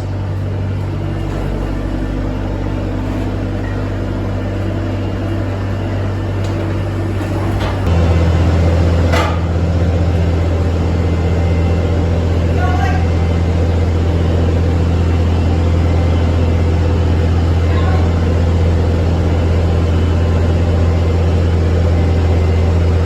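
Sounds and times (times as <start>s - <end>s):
loading machine engine running: 0.0s - 23.0s.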